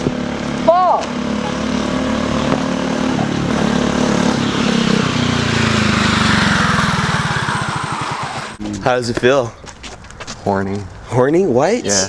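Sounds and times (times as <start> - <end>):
small motorcycle engine running: 0.0 - 8.6.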